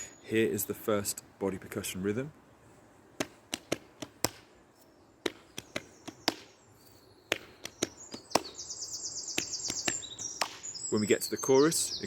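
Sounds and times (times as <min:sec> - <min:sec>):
hand slaps and claps: 0:03.2 - 0:04.5, 0:05.2 - 0:06.5, 0:07.3 - 0:08.6, 0:09.4 - 0:10.6.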